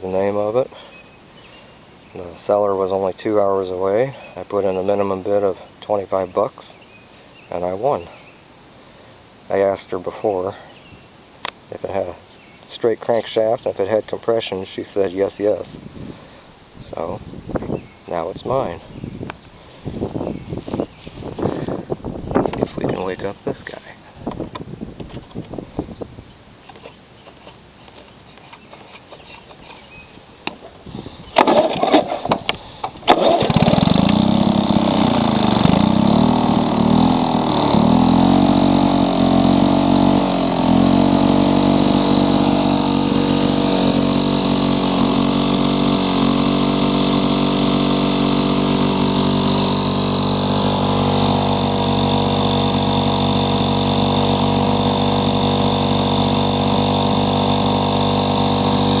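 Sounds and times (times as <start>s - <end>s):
lawn mower engine running: 12.7s - 59.0s
starter cord pulls: 22.4s - 23.3s, 26.7s - 59.0s.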